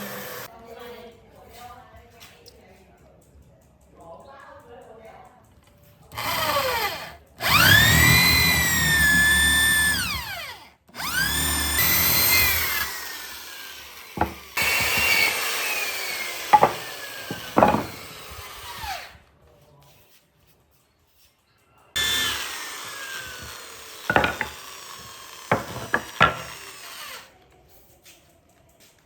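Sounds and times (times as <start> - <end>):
power tool whining on wood: 0.0 - 0.5, 6.1 - 19.2, 22.0 - 27.3
sharp knocks: 14.2 - 15.2, 16.6 - 18.0, 24.1 - 24.6, 25.5 - 26.5.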